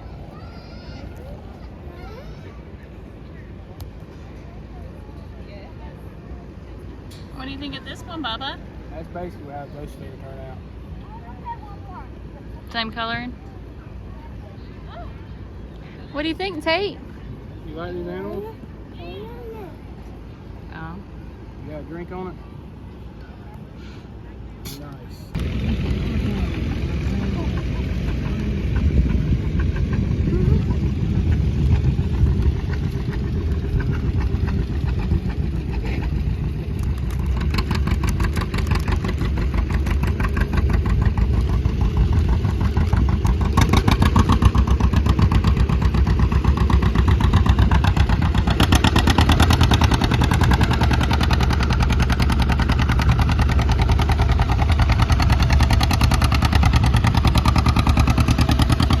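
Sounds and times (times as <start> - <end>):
engine running: 16.2 - 59.0.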